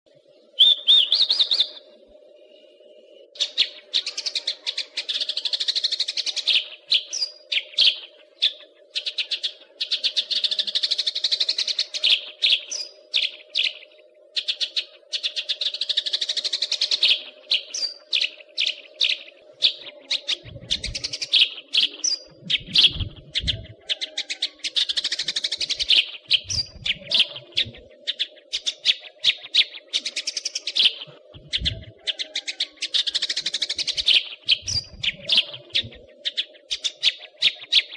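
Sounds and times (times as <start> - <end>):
songbird chirps and trills: 0.1 - 37.9
steady low hum: 19.3 - 28.6, 30.9 - 32.2, 33.9 - 36.6
low thumps: 22.4 - 23.8.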